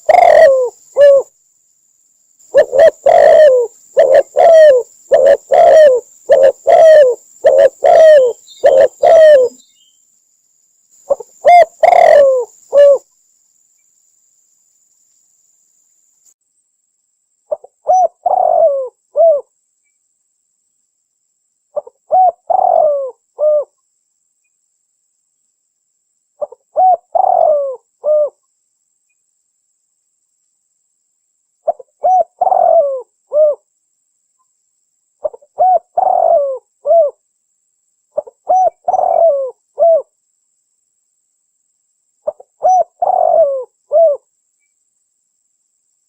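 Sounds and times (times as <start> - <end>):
dove cooing: 0.0 - 1.3, 2.5 - 9.6, 11.1 - 13.0, 17.5 - 19.5, 21.8 - 23.7, 26.4 - 28.4, 31.7 - 33.6, 35.2 - 37.2, 38.2 - 40.1, 42.2 - 44.2.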